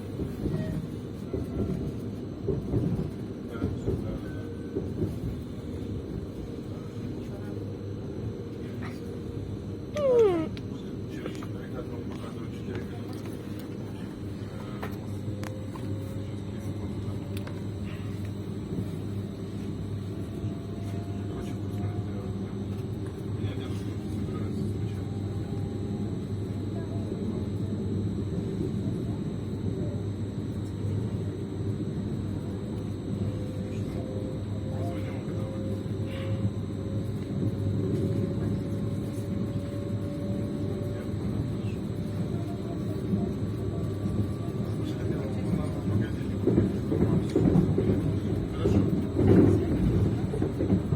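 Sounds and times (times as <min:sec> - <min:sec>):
train wheels rumbling on rails: 0:00.0 - 0:06.5, 0:35.4 - 0:50.9
faint steady whine: 0:00.0 - 0:50.9.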